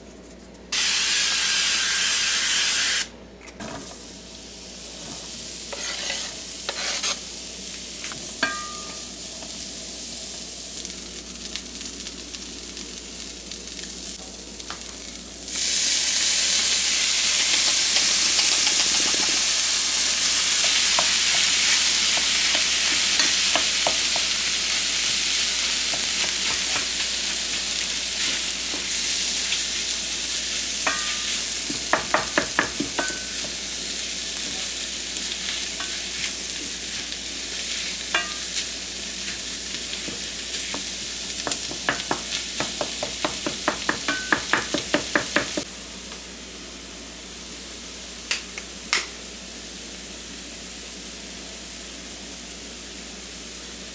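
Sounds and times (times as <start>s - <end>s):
food sizzling in frying pan: 0.7s - 3.1s, 3.8s - 53.9s
utensil tapping and scraping pan: 30.9s - 33.6s, 40.0s - 45.7s.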